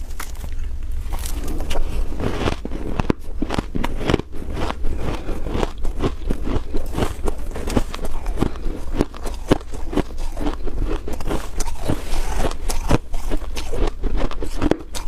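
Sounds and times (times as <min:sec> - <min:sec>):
frost crunching when chewed: 0:00.0 - 0:15.0.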